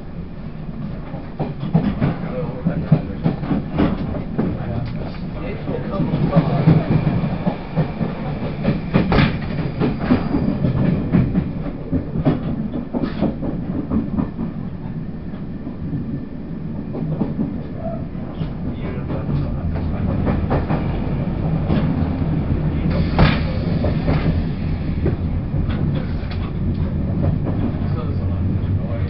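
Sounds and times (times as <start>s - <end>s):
train wheels rumbling on rail: 0.0s - 29.0s
rail joint clicks and knocks: 0.7s - 29.0s.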